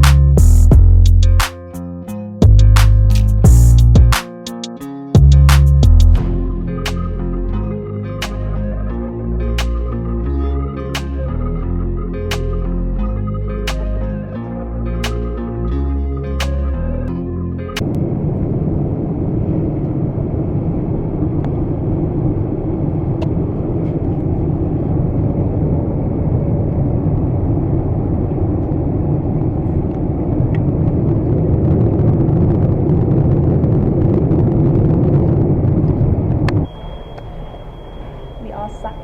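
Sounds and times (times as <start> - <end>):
airliner cabin rumble: 17.8 - 39.0.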